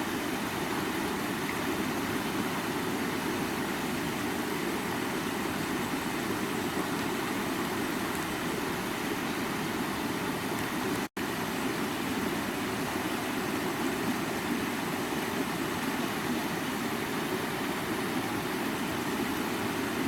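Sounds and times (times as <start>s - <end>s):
stream water running over rocks: 0.0s - 20.0s.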